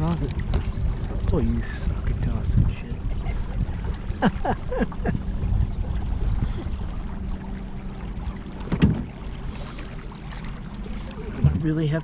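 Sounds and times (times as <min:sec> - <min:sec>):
wind noise: 0:00.0 - 0:07.2
short splashes or knocks: 0:05.2 - 0:12.0.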